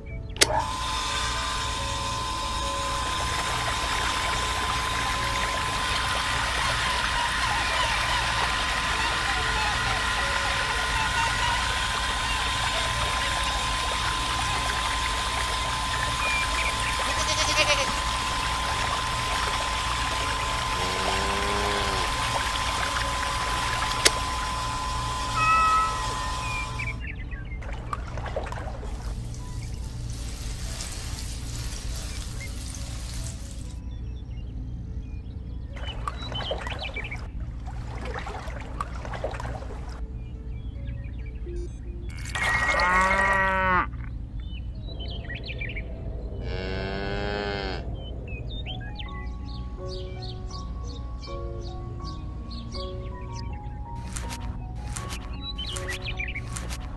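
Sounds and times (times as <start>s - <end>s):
small electric water pump: 0.0s - 33.8s, 35.8s - 40.0s, 42.1s - 43.7s, 53.9s - 56.9s
water pouring into a tub: 2.3s - 27.0s, 27.7s - 33.8s, 42.2s - 43.3s
cow mooing: 17.0s - 18.0s, 20.8s - 22.2s, 42.1s - 44.0s, 46.4s - 47.9s
short pitched call: 25.3s - 27.0s.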